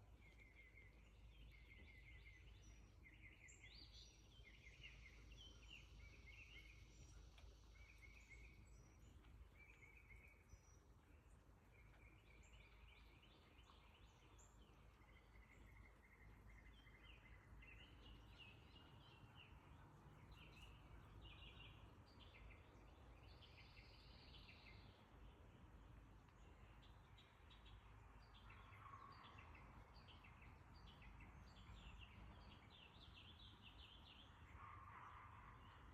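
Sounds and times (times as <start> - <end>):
songbirds chirping and trilling: 0.0 - 35.9
low outdoor rumble: 6.0 - 23.2.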